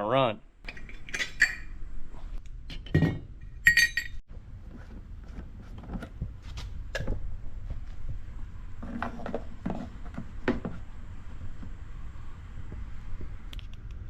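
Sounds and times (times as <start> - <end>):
metal objects clinking: 0.7 - 1.8, 2.7 - 4.2.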